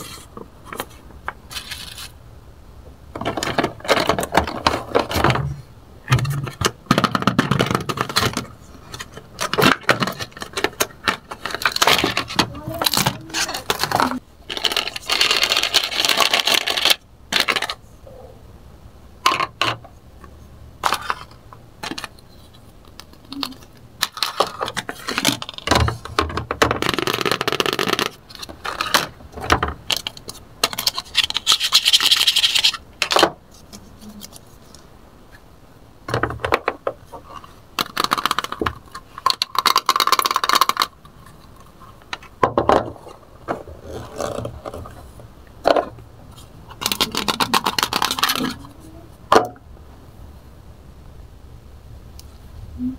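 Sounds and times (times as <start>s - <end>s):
plastic toy pieces clattering: 6.2s - 17.8s, 20.8s - 22.2s, 22.8s - 33.3s, 36.1s - 45.0s, 46.7s - 48.8s.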